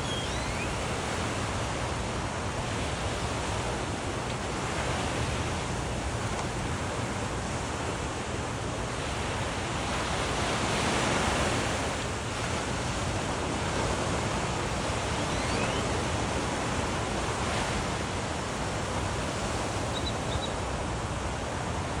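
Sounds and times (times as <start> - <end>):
faint bird chirps: 0.0 - 1.0, 15.1 - 16.0, 19.9 - 20.6
surf washing onto beach: 0.0 - 22.0.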